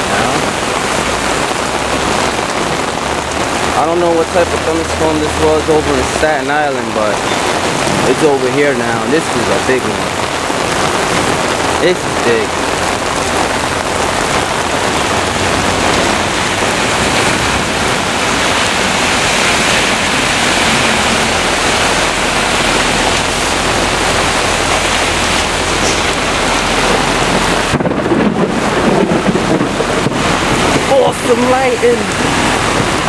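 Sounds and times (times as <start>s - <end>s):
heavy rain pouring: 0.0s - 33.0s
low rumble of thunder: 7.1s - 33.0s.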